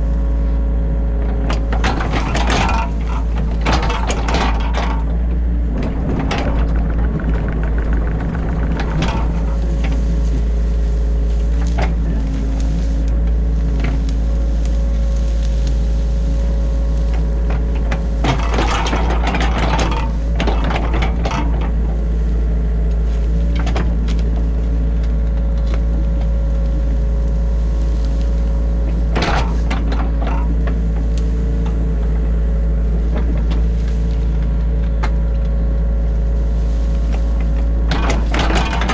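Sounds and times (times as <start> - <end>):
diesel engine running: 0.0 - 38.9
scraping and knocking: 1.6 - 13.1.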